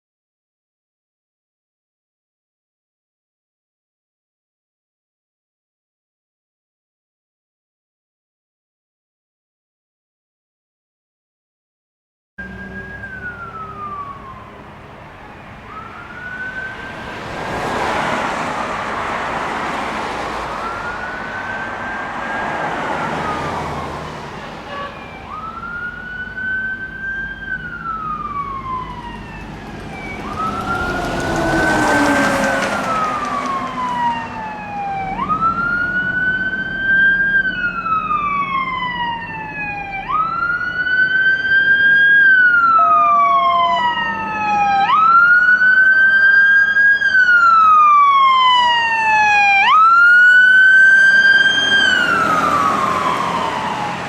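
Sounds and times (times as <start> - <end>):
higher quicker siren: 12.4 - 54.0
vehicles passing: 12.4 - 54.0
wailing siren: 12.4 - 54.0.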